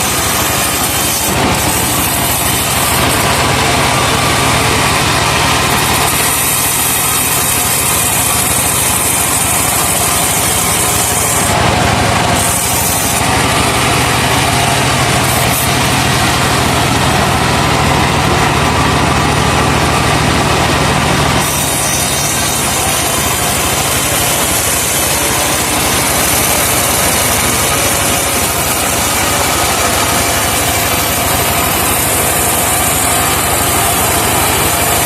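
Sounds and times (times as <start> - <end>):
saw hissing through wood: 0.0 - 35.0
truck engine running under load: 0.0 - 35.0.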